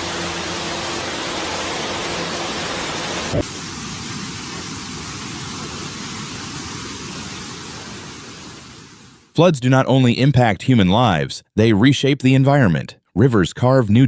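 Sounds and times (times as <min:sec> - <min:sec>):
water rushing hiss: 0:00.0 - 0:09.3.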